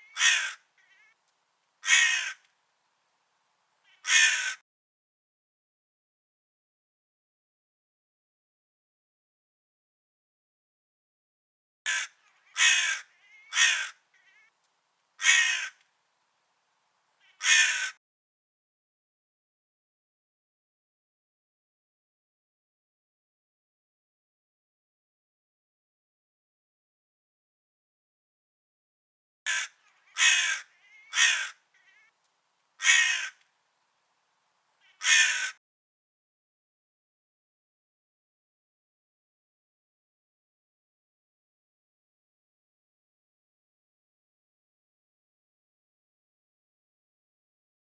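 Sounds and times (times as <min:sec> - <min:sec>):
crow cawing: 0:00.0 - 0:01.2, 0:01.8 - 0:02.5, 0:03.9 - 0:04.6, 0:11.9 - 0:14.5, 0:15.2 - 0:15.8, 0:17.2 - 0:18.0, 0:29.5 - 0:32.1, 0:32.8 - 0:33.4, 0:34.8 - 0:35.6.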